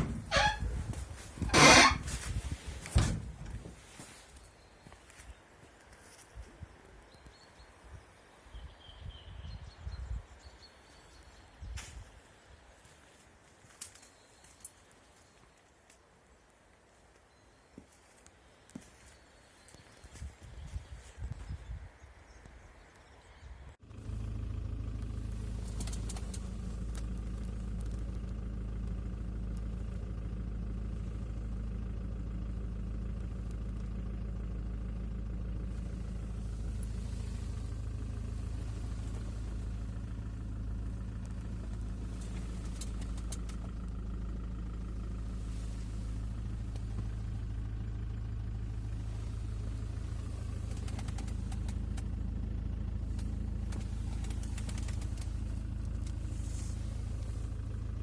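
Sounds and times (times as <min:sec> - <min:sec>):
diesel engine idling: 0:00.0 - 0:04.8, 0:23.7 - 0:58.0
faint clicks: 0:24.9 - 0:28.4, 0:41.2 - 0:44.0, 0:50.2 - 0:52.2, 0:53.2 - 0:56.3.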